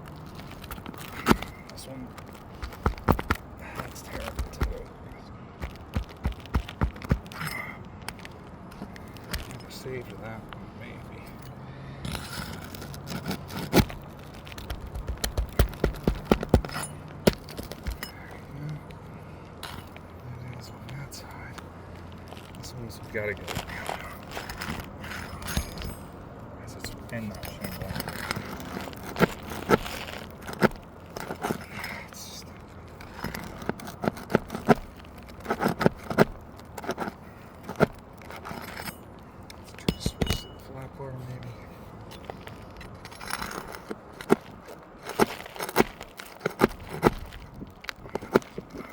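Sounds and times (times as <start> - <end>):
hand tools knocking on shingles: 2.5 - 4.8, 5.6 - 8.2, 14.6 - 18.2, 39.8 - 40.6
metal tool knocking and scraping: 14.6 - 18.5, 24.4 - 26.2, 33.0 - 40.7.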